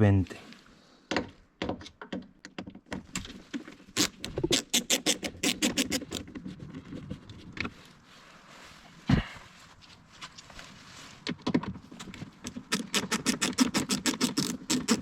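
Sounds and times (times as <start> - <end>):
screwdriver clicking and scratching: 4.0 - 6.3, 12.5 - 15.0.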